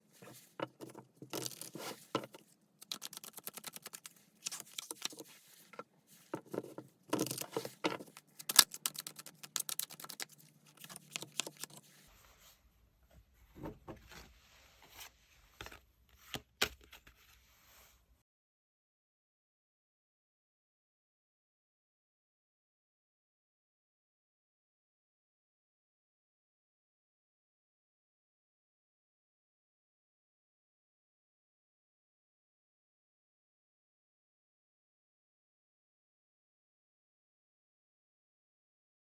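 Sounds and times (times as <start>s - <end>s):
cards being shuffled: 0.2s - 5.6s, 6.2s - 11.9s.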